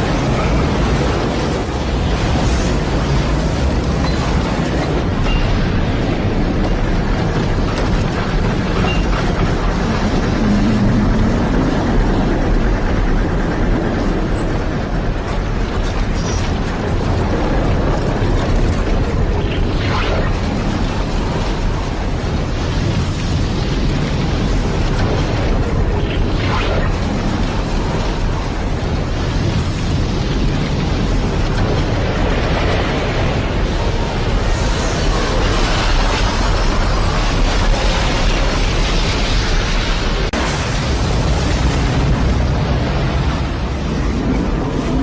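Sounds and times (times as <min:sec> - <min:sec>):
floodwater rushing: 0:00.0 - 0:13.4
flood torrent roaring: 0:00.0 - 0:45.0.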